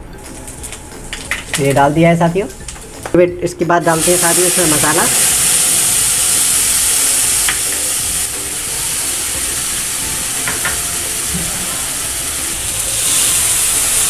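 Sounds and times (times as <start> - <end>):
paste sizzling in hot oil: 3.8 - 14.0.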